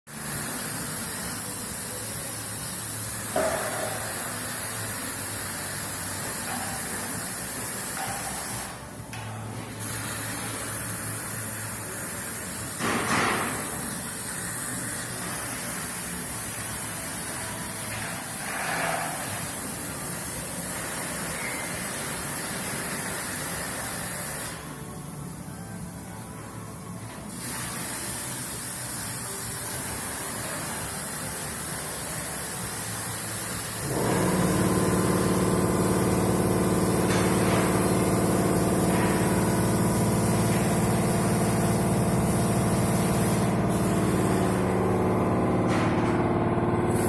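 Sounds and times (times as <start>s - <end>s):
diesel engine running: 33.8s - 47.0s.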